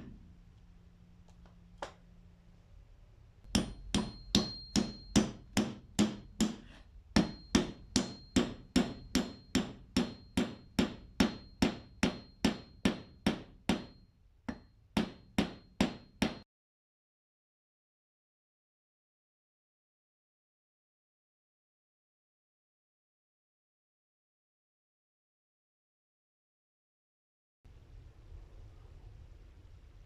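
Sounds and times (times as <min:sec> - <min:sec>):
hammer striking metal: 0:03.5 - 0:16.4.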